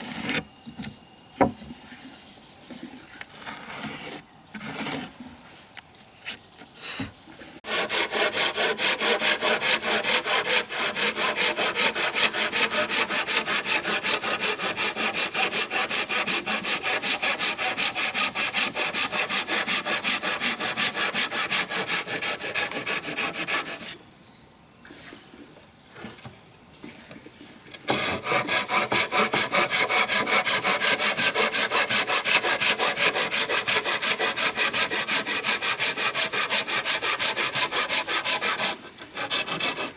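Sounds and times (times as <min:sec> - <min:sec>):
hand saw cutting wood: 0:00.0 - 0:00.4, 0:03.4 - 0:05.2, 0:07.6 - 0:24.0, 0:27.9 - 0:39.9.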